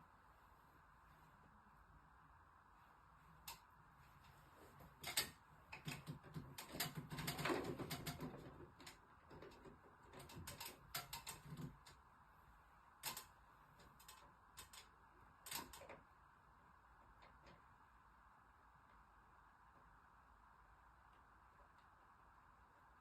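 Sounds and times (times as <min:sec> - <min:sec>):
faint steady hiss: 0:00.0 - 0:23.0
light clicks and knocks: 0:03.4 - 0:12.1, 0:13.0 - 0:16.1.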